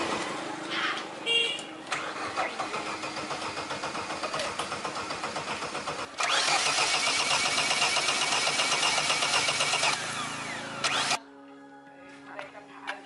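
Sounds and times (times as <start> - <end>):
car engine running: 2.5 - 11.2.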